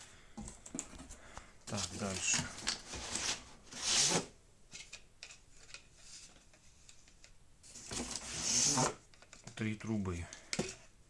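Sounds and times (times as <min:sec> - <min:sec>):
packaging rustling: 0:01.6 - 0:04.3.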